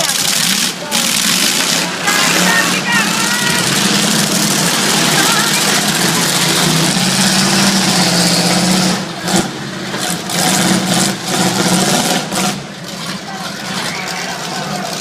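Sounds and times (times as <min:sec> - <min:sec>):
truck engine running hard: 0:00.0 - 0:15.0.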